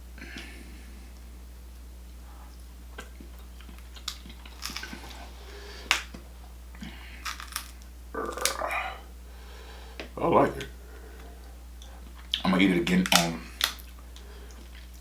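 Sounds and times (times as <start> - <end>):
steady low hum: 0.0 - 15.0
chewing clicks and smacks: 3.0 - 5.2, 11.8 - 15.0.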